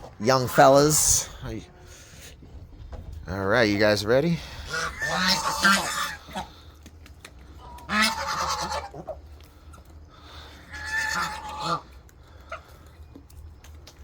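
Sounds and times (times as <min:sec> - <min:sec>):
geese honking: 0:04.4 - 0:06.7, 0:07.5 - 0:12.9.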